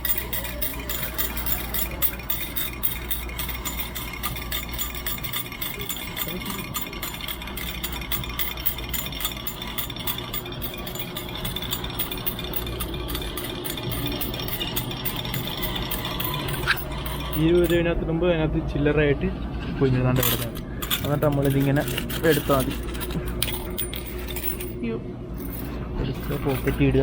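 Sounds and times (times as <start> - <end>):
coins clinking into metal tray: 0.0 - 17.8, 20.2 - 24.8, 25.4 - 27.0
low machine hum: 0.0 - 27.0.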